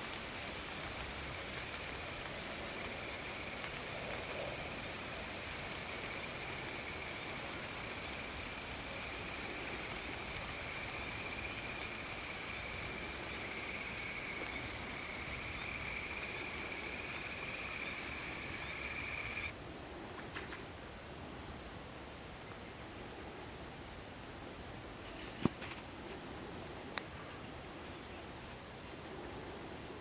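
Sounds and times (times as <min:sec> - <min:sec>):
crickets trilling: 0:00.0 - 0:19.5
rain and wind in trees: 0:00.0 - 0:30.0.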